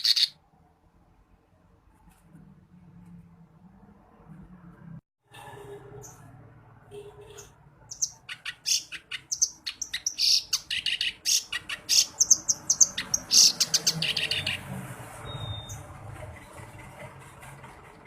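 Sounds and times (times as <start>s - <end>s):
warbler harsh chattering song: 0.0s - 0.3s, 7.4s - 14.7s.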